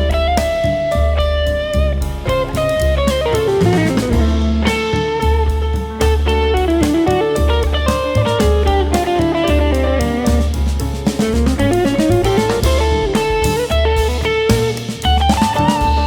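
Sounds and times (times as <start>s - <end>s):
bass and drum kit: 0.0s - 16.0s.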